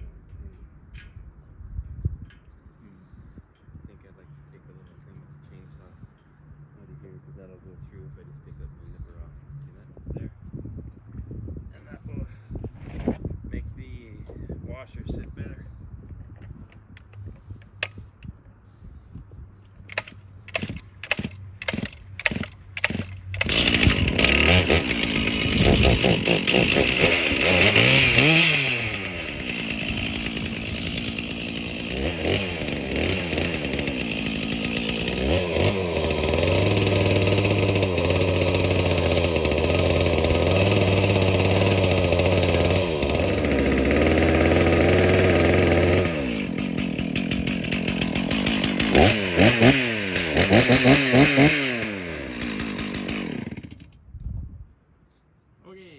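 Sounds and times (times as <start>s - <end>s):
motor-driven tool running: 19.9s - 53.8s.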